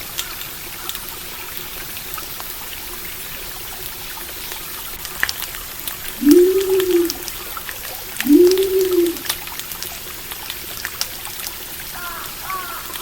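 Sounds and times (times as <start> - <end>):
stream water running: 0.0 - 13.0
bird chirping: 6.2 - 7.2, 8.2 - 9.2
low hooting call: 6.2 - 7.4, 8.2 - 9.3.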